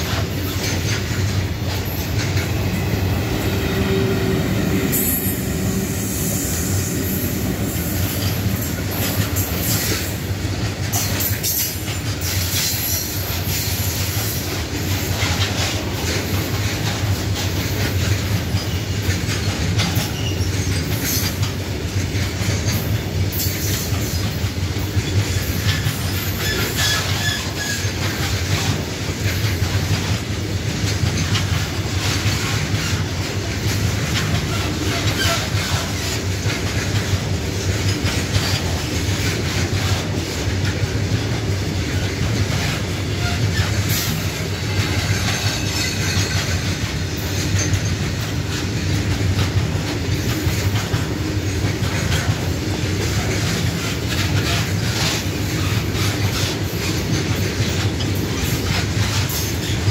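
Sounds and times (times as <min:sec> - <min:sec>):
wheels clicking over rail joints: 0:00.0 - 0:03.4, 0:07.3 - 0:59.9
freight train rumbling past: 0:00.0 - 0:59.9
high wheel squeal: 0:25.5 - 0:28.1.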